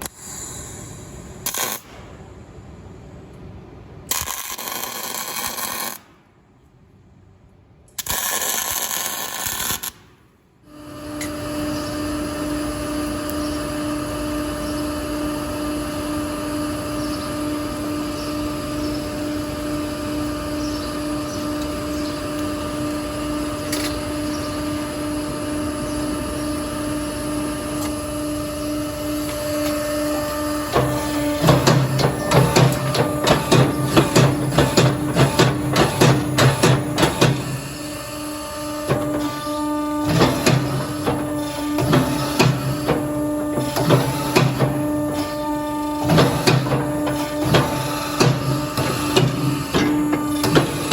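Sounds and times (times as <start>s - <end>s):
machine motor humming: 10.8s - 50.9s.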